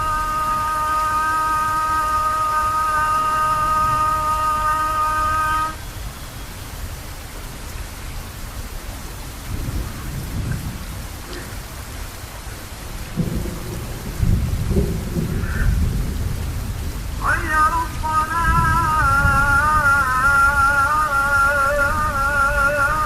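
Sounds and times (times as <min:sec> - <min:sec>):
man singing call to prayer: 0:00.0 - 0:05.8, 0:17.2 - 0:23.0
rolling thunder: 0:00.0 - 0:05.8, 0:09.4 - 0:11.8, 0:13.1 - 0:23.0
steady rain: 0:00.0 - 0:23.0.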